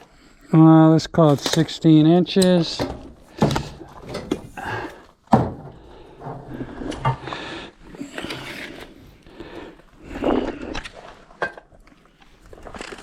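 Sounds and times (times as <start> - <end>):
tools and materials rattling: 2.7 - 4.7.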